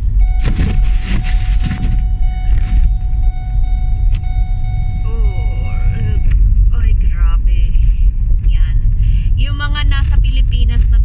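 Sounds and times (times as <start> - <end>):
car road rumble: 0.0 - 11.0
thin steady tone: 0.1 - 6.4.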